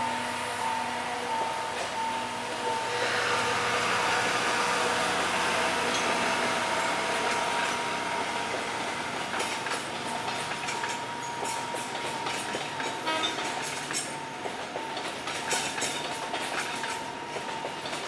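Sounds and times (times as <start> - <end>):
train running by: 0.0 - 18.0
wheels clicking over rail joints: 5.0 - 18.0.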